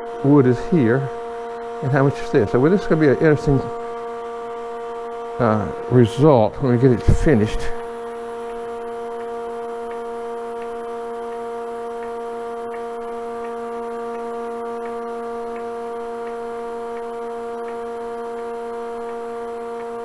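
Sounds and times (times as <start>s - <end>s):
wood lathe humming: 0.0s - 20.0s
faint ticks: 9.2s - 20.0s.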